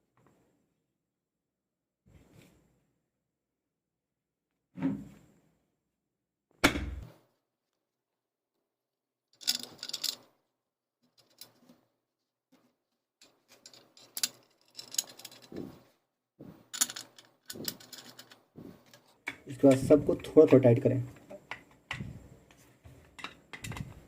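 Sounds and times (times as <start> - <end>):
ceiling fan parts clicking: 16.7 - 24.0.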